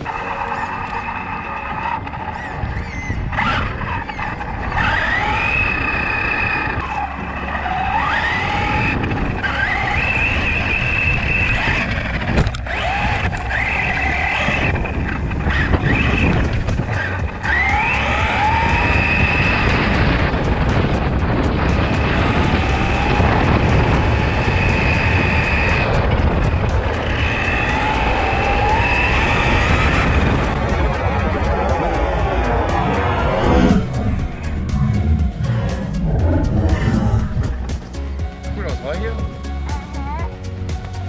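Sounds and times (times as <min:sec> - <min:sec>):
toy car motor whining: 0:00.0 - 0:37.7
tyres and wind rumble: 0:00.0 - 0:41.0.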